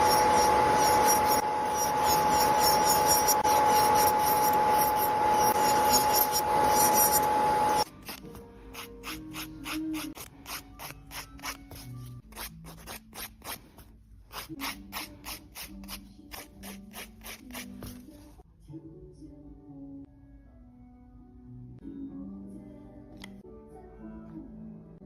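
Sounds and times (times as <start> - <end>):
nail file rasping on fingernail: 0.0 - 18.0
soft background music: 5.4 - 25.0.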